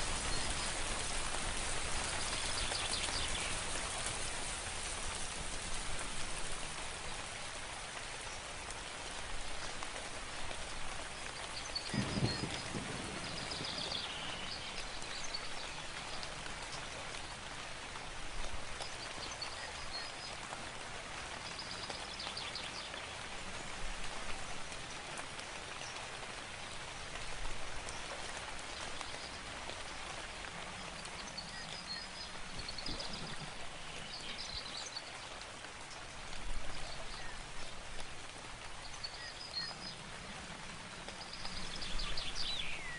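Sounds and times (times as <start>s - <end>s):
steady rain falling: 0.0s - 42.9s
songbird chirping: 11.2s - 17.4s, 41.1s - 42.9s.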